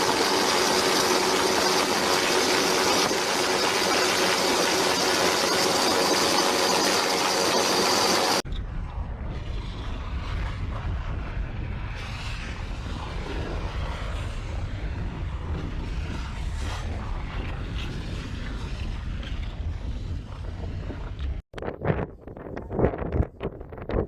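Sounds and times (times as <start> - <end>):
wind buffeting microphone: 8.4 - 24.0.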